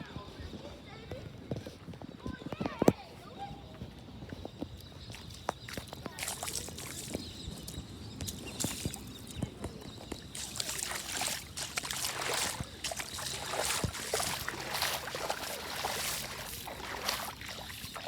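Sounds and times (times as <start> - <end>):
footsteps splashing through water: 4.7 - 18.0.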